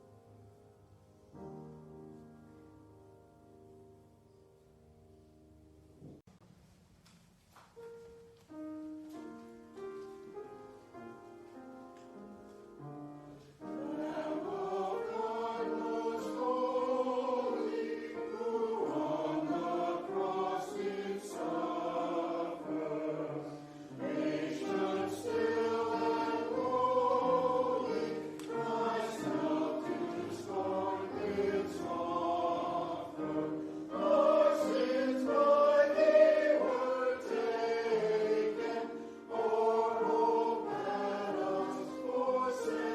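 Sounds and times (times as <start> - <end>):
choir singing: 13.2 - 42.9.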